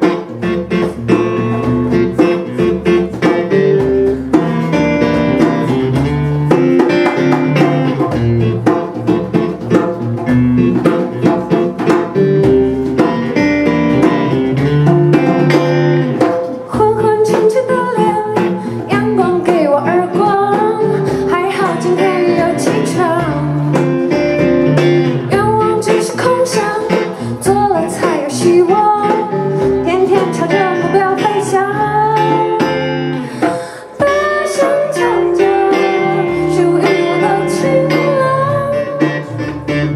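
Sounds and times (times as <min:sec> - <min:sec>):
guitar playing: 0:00.0 - 0:39.9
person singing: 0:16.7 - 0:24.0, 0:25.0 - 0:39.9.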